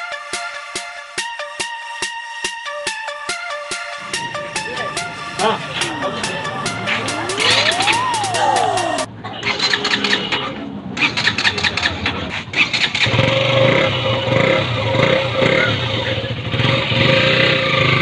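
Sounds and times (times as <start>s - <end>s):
motorcycle engine starting and idling: 8.8s - 18.0s.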